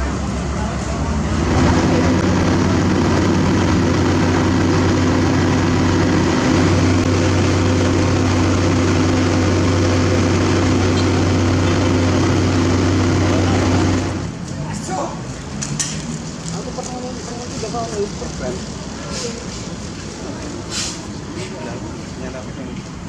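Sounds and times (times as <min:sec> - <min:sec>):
heavy diesel engine droning: 0:01.2 - 0:14.4.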